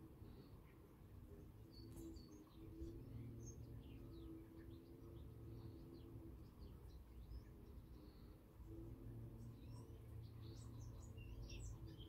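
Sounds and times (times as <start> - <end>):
birds chirping and singing: 9.4 - 12.0.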